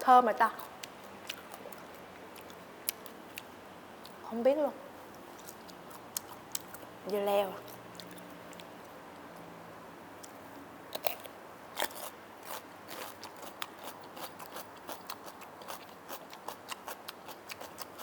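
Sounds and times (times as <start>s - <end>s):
crunchy food chewing: 0.6s - 4.2s, 5.3s - 6.9s, 7.6s - 9.0s, 10.2s - 18.0s.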